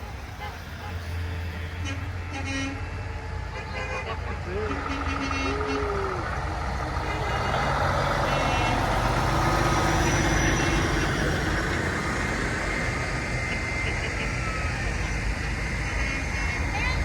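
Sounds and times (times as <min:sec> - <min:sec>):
diesel truck engines rumbling: 0:00.0 - 0:17.0
faint voices: 0:04.3 - 0:08.3.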